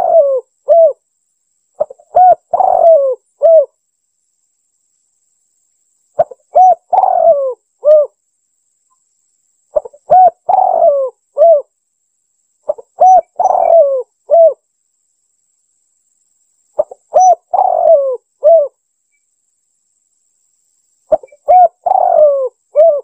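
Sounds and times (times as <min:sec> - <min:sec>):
dove cooing: 0:00.0 - 0:01.0, 0:01.8 - 0:03.7, 0:06.2 - 0:08.2, 0:09.8 - 0:11.7, 0:12.7 - 0:14.6, 0:16.8 - 0:18.8, 0:21.1 - 0:23.0.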